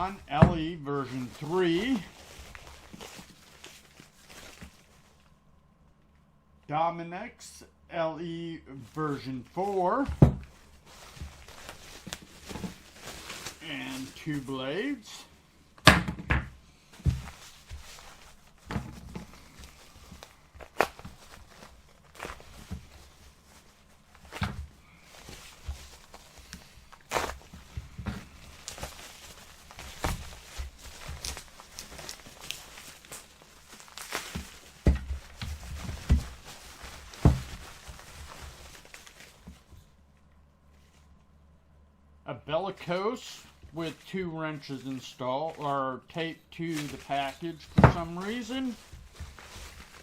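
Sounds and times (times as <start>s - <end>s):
packages being handled and set down: 0.0s - 5.3s, 9.1s - 15.0s, 15.7s - 39.9s, 43.4s - 50.0s
dull thumps: 10.0s - 13.4s, 34.1s - 38.7s.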